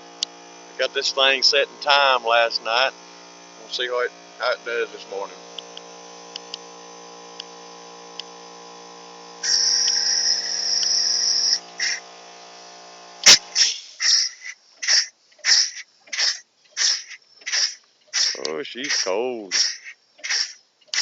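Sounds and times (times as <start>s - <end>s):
steady hum: 0.0s - 21.0s
steam hissing: 13.2s - 21.0s
steam engine chuffing: 13.6s - 21.0s.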